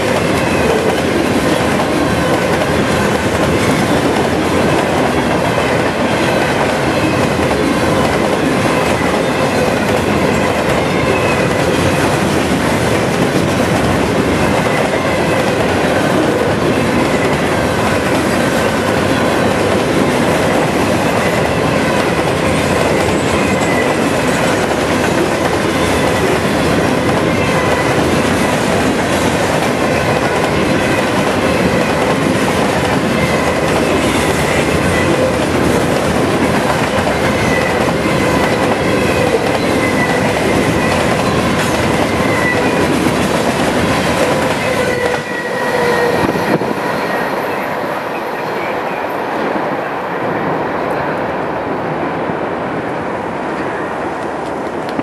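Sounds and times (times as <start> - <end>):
train wheels rumbling over rails: 0.0 - 55.0.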